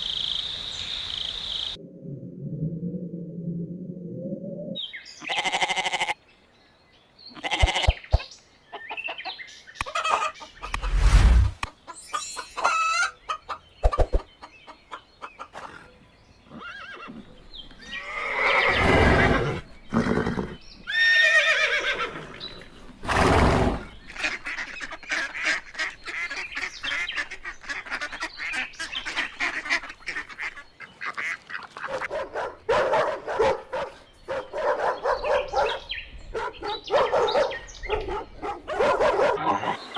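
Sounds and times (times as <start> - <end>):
poultry calling: 5.2 - 6.2, 16.5 - 32.6
poultry chattering rapidly: 23.1 - 32.1.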